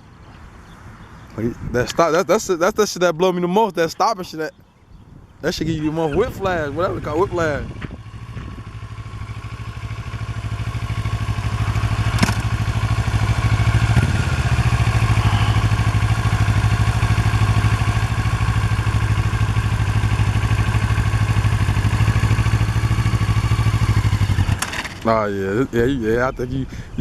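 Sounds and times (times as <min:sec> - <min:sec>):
motorcycle engine running: 0:06.0 - 0:25.5.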